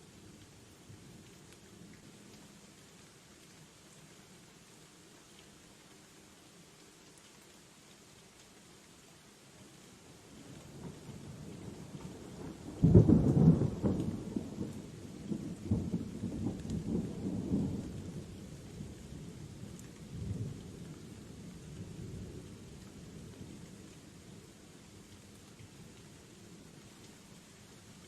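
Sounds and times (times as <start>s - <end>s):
steady rainfall: 0.0s - 28.0s
thunder crack and rumble: 12.5s - 18.2s.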